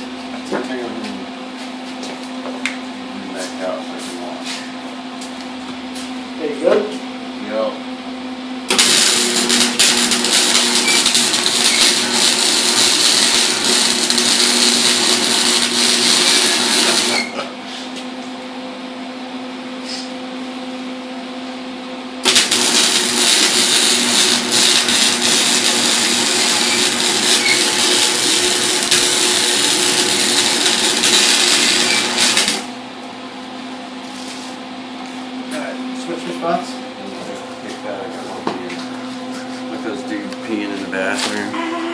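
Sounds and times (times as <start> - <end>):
steady low hum: 0.0 - 41.9
arc welding: 8.6 - 17.4, 22.2 - 32.8.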